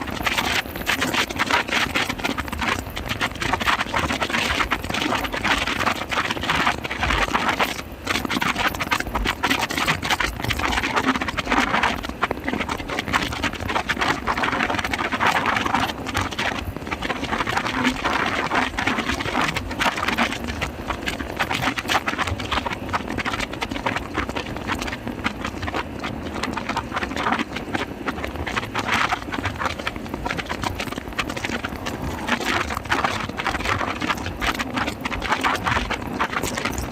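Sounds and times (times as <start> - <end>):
rapid irregular thumps: 0.0 - 36.9
wind buffeting microphone: 24.2 - 36.9.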